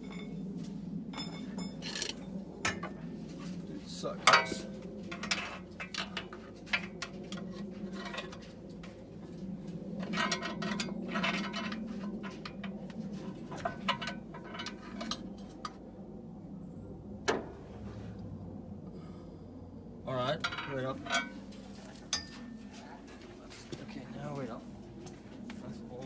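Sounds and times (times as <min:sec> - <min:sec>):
low steady hum: 0:00.0 - 0:26.0
light metallic clinks and knocks: 0:20.4 - 0:22.6.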